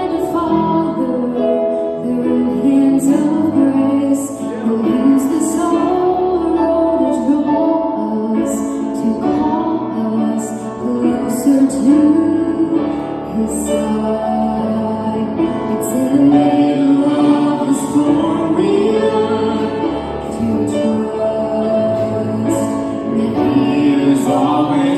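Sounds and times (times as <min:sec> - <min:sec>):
song with instrumental accompaniment: 0:00.0 - 0:24.9.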